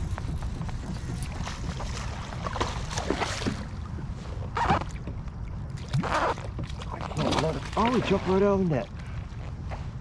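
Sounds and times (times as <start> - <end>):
wind on microphone: 0.0 - 7.3
water splashing around kayak: 0.0 - 10.0.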